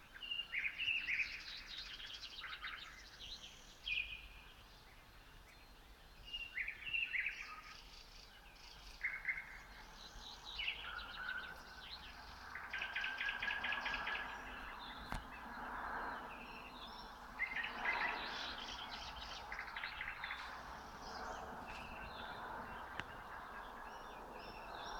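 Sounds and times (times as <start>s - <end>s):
nightingale singing: 5.1s - 24.9s.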